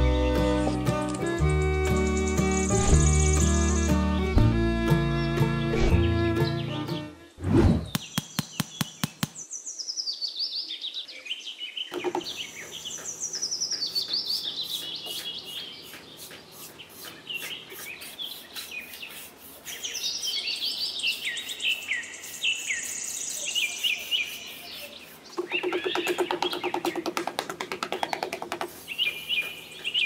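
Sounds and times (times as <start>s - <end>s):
birds chirping in cascading trills: 1.5s - 4.4s, 7.9s - 27.1s.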